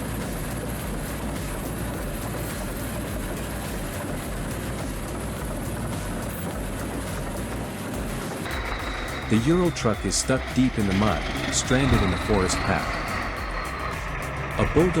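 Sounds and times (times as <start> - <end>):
bulldozer diesel engine running: 0.0 - 15.0.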